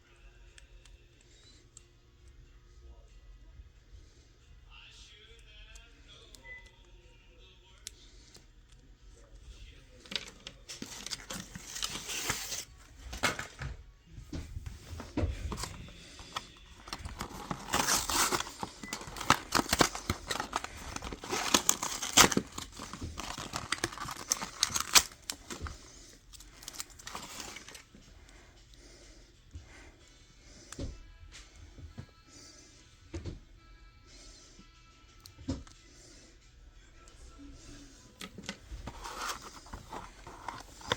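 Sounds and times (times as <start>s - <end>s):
packaging crinkling and tearing: 10.0s - 13.5s, 15.5s - 27.9s, 38.3s - 40.9s.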